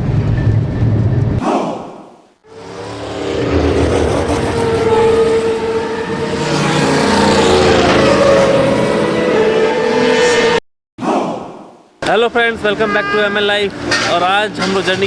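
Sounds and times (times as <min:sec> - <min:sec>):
steady train whine: 0:02.5 - 0:10.1
train rushing at speed: 0:02.5 - 0:10.6.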